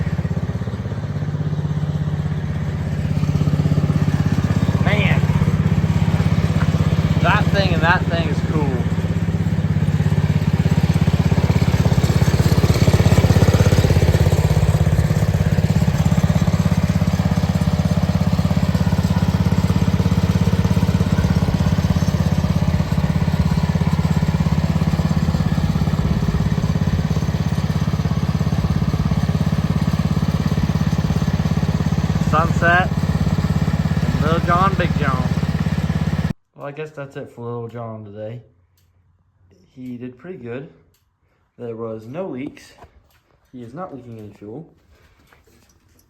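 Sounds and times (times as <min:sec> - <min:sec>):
small tractor engine running: 0:00.0 - 0:36.4.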